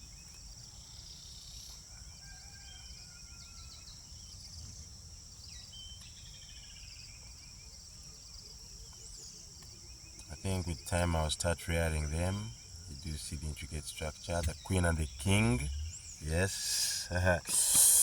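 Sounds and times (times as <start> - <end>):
high-pitched insect drone: 10.3 - 18.0.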